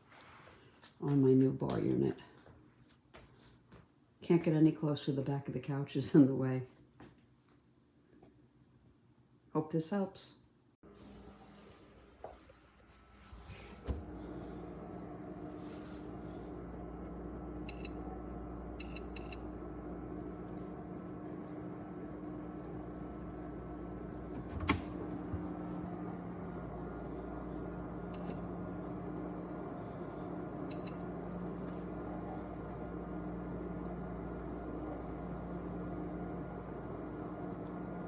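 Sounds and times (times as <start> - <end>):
electrical machine hum: 10.8 - 38.0.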